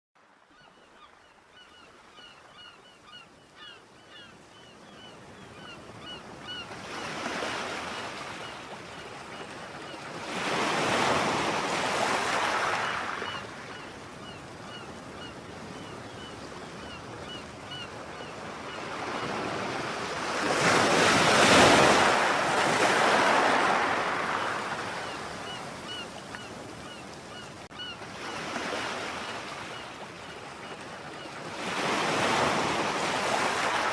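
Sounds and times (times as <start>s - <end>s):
ocean waves washing in: 19.0s - 26.8s.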